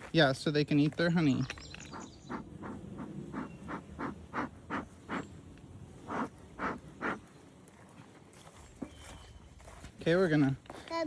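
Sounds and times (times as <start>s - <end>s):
bellows smoker puffing air: 2.3s - 7.3s.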